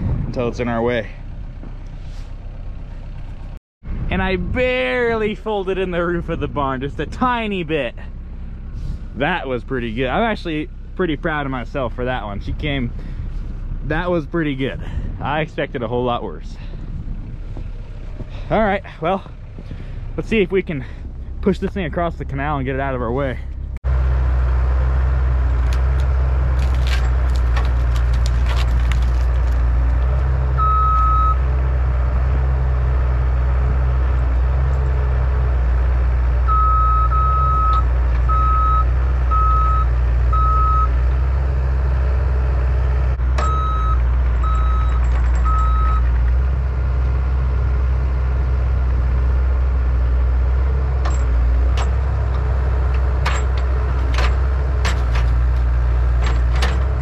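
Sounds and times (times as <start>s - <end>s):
diesel engine running under load: 0.0s - 57.0s
reversing alarm high beeps: 30.6s - 31.4s, 36.5s - 40.9s, 43.4s - 46.0s
sharp clicks and knocks: 44.2s - 46.4s, 51.0s - 57.0s.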